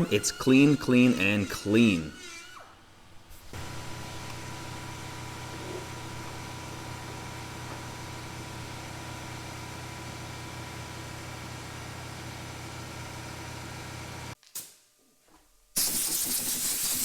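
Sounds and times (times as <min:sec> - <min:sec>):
motor humming: 0:00.0 - 0:11.9.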